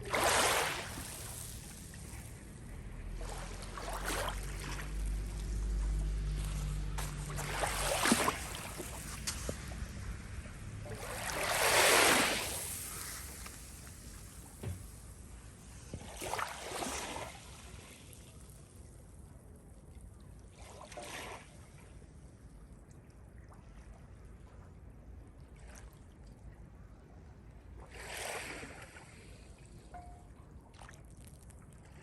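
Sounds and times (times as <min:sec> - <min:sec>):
water washing in: 0:00.0 - 0:15.0.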